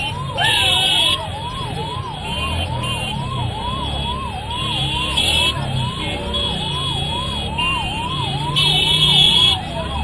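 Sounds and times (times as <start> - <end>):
vehicle siren wailing: 0.0 - 10.0.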